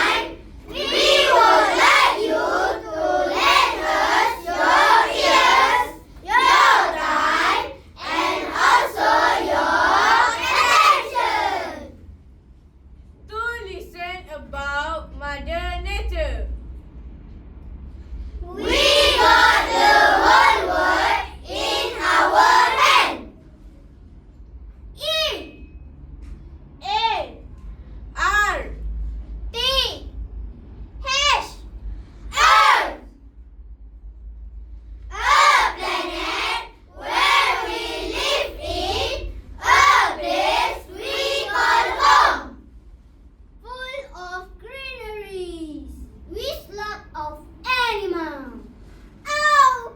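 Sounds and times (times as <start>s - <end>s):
children speaking in unison: 0.0s - 12.0s, 18.4s - 23.4s, 31.0s - 31.6s, 32.4s - 33.1s, 35.1s - 42.6s, 43.7s - 49.9s.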